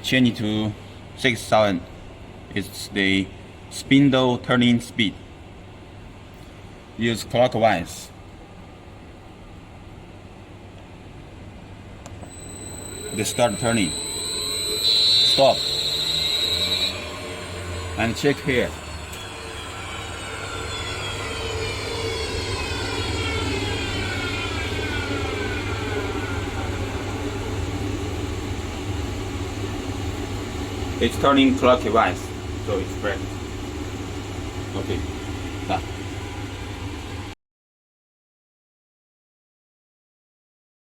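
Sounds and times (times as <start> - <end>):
high whine falling in pitch: 12.1 - 37.4
grinder motor humming: 12.3 - 31.4.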